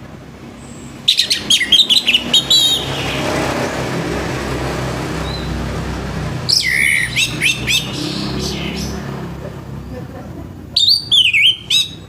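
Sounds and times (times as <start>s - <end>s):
rushing noise with low hum: 0.0s - 11.1s
thrush singing whistled notes: 0.6s - 3.7s, 5.2s - 5.6s, 6.4s - 9.2s, 10.8s - 12.0s.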